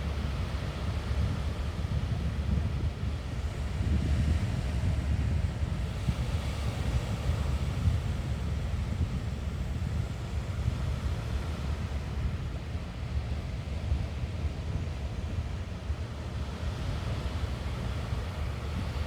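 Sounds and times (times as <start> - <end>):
wind buffeting microphone: 0.1 - 11.0.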